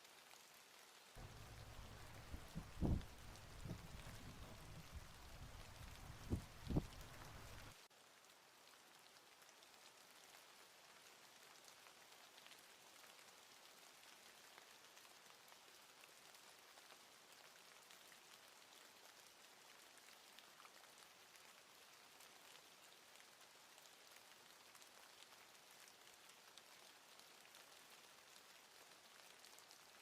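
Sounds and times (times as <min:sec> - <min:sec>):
patter of falling rain: 0:00.0 - 0:30.0
low rumble with knocks: 0:01.2 - 0:07.7.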